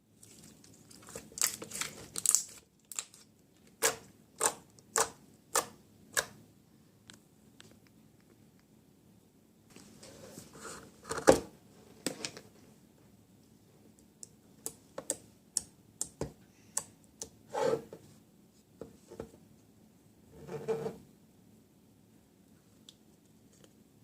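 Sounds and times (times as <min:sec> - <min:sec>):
packaging rustling: 0:00.2 - 0:03.3.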